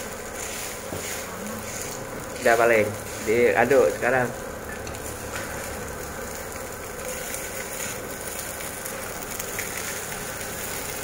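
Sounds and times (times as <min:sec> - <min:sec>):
spatula scraping wok: 0:00.0 - 0:06.0, 0:07.0 - 0:08.4
rice sizzling in a wok: 0:00.0 - 0:11.0.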